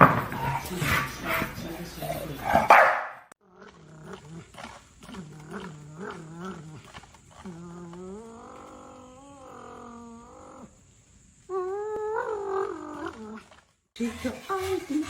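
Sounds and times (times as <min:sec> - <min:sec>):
dog howling: 0:05.1 - 0:10.8, 0:11.5 - 0:13.6.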